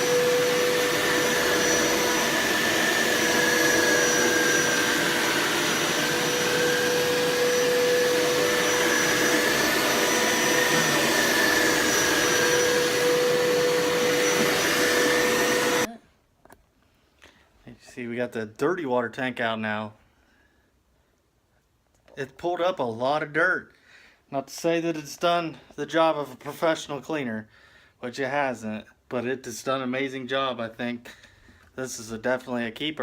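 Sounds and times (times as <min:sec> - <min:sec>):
carpet cleaner motor whine: 0:00.0 - 0:15.9.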